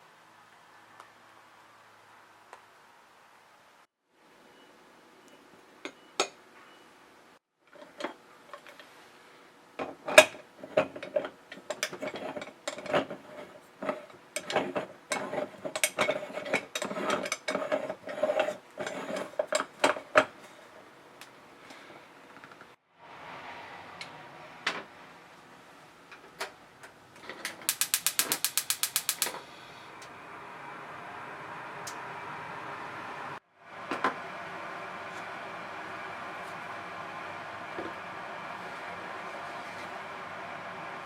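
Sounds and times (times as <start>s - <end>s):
small mechanism clicking and rattling: 27.2s - 29.5s.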